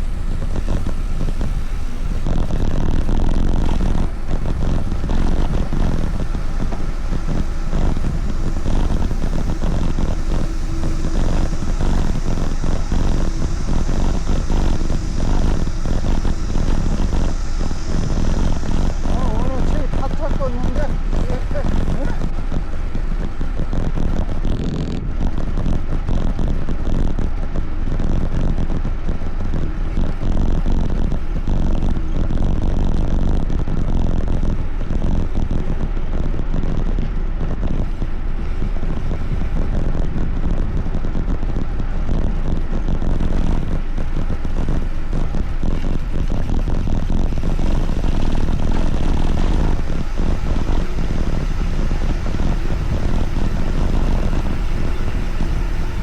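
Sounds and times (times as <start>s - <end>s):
wind buffeting microphone: 0.0s - 26.9s, 27.6s - 56.0s.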